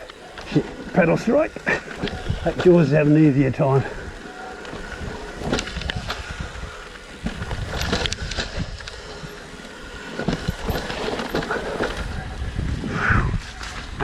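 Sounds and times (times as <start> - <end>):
bike tyres rumbling on dirt: 0.0 - 14.0
bike clattering and knocking: 4.2 - 12.2.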